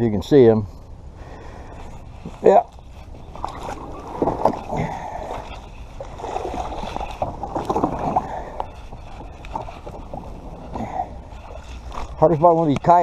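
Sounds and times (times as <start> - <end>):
scraping on kayak hull: 1.7 - 13.0.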